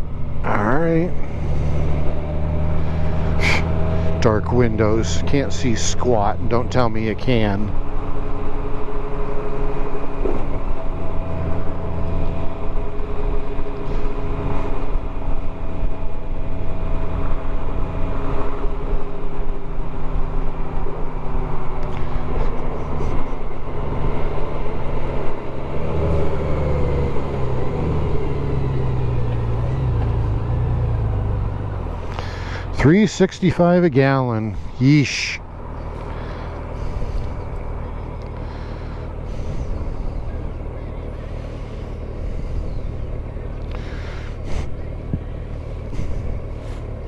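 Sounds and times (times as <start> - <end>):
road and wind noise: 0.0 - 47.0
motorcycle engine running: 21.9 - 33.6, 35.5 - 47.0.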